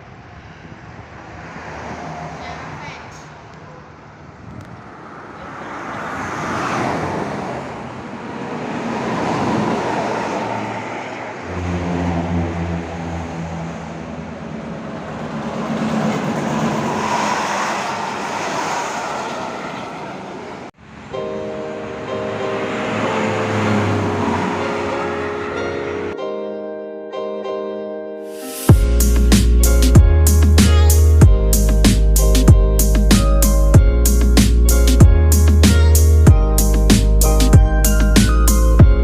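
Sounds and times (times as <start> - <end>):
buses going by: 0.0 - 26.2, 28.7 - 39.0
road traffic passing: 0.0 - 26.2, 28.7 - 39.0
steady musical tones: 10.5 - 26.3
low engine drone: 11.3 - 18.3.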